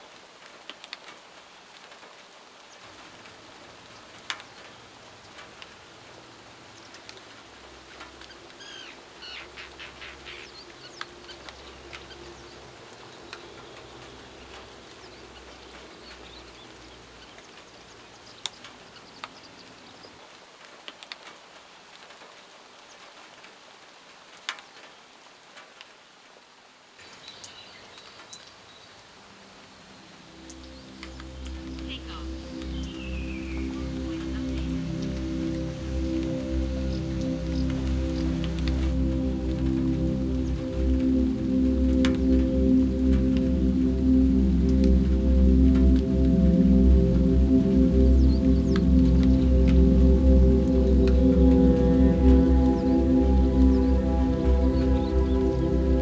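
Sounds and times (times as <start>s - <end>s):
light rain hiss: 0.0s - 56.0s
bird calling: 8.2s - 14.4s, 30.5s - 35.2s.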